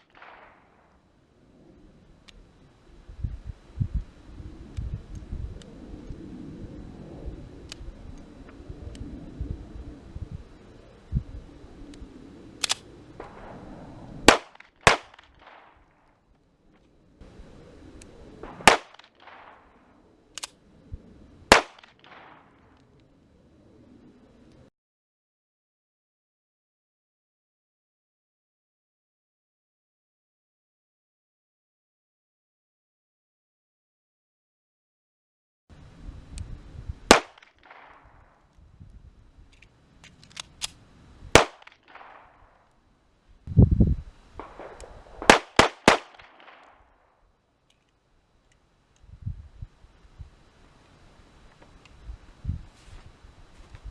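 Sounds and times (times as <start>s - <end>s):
light double crack: 0.0s - 0.9s, 11.9s - 15.8s, 18.0s - 20.6s, 21.5s - 23.1s, 37.1s - 38.3s, 39.6s - 42.7s, 44.4s - 47.0s
gunshots with echo: 44.4s - 46.7s.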